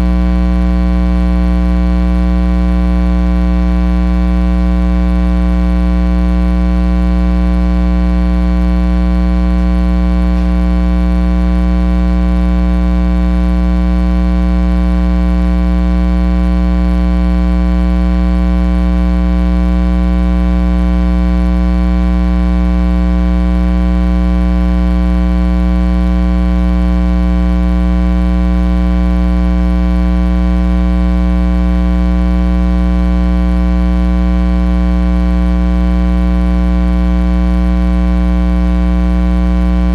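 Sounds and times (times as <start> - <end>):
electrical mains hum: 9.6 - 11.6.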